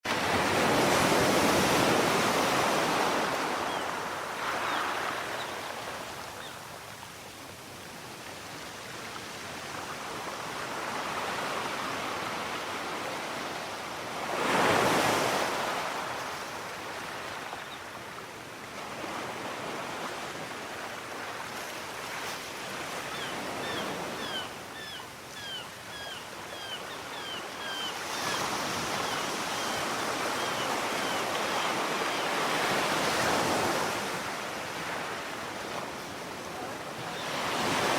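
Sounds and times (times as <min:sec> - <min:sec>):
seagulls calling: 0:23.1 - 0:33.5, 0:36.9 - 0:37.9
waves breaking: 0:31.7 - 0:37.9.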